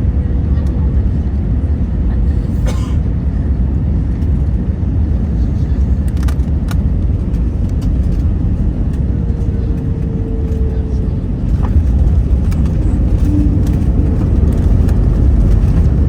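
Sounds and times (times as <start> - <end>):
aircraft cabin low rumble: 0.0 - 16.0.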